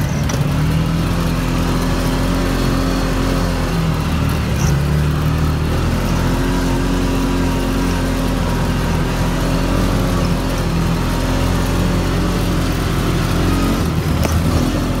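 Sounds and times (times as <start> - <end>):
motorcycle engine running: 0.0 - 15.0
wide rumble of noise: 0.0 - 15.0.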